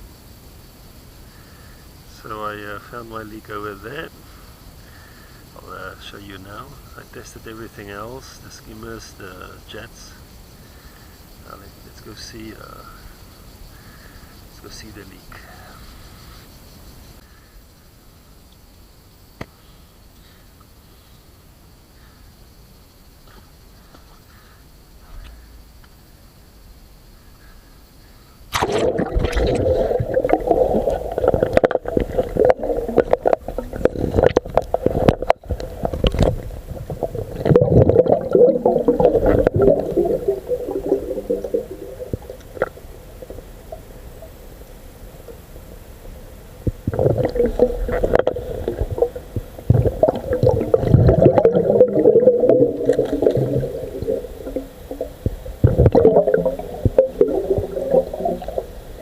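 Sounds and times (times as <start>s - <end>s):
muffled underwater sloshing and bubbling: 28.5s - 59.0s.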